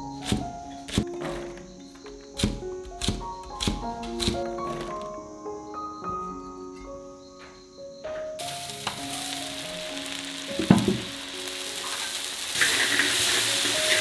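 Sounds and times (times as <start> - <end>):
food sizzling in a wok: 8.4 - 14.0.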